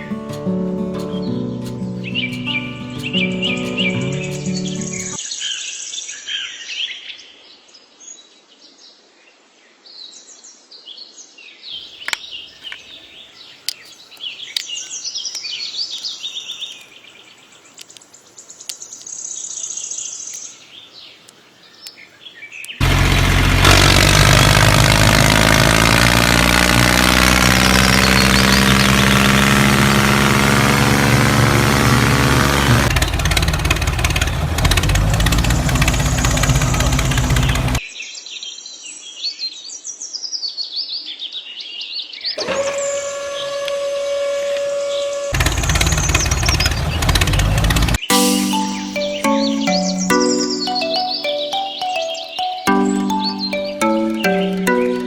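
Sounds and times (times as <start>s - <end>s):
birds chirping: 0.0s - 5.2s, 11.8s - 37.8s, 45.3s - 55.0s
engine humming: 0.0s - 5.2s, 22.8s - 37.8s, 42.4s - 55.0s.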